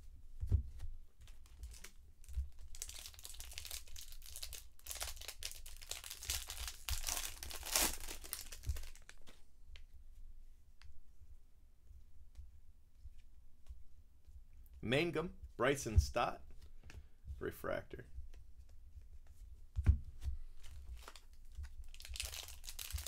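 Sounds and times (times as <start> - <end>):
foil wrapper crinkling and tearing: 1.6 - 9.4, 21.0 - 23.0.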